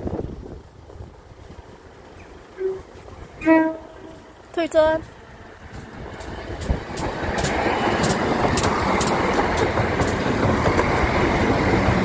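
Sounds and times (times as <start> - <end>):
diesel train passing close: 0.0 - 12.0
wheels clicking over rail joints: 0.0 - 12.0.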